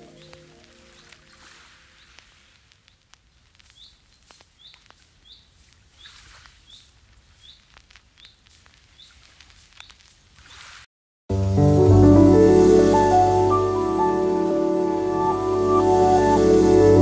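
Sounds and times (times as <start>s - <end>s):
small bird chirping: 2.9s - 9.2s.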